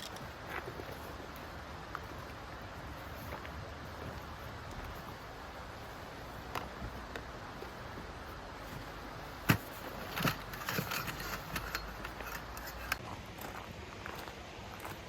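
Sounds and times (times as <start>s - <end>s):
objects clicking and rattling: 9.5s - 13.0s.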